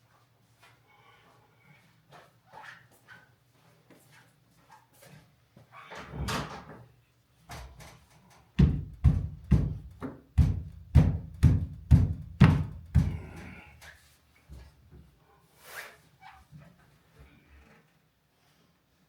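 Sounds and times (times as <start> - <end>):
heavy knocks: 8.6 - 13.6.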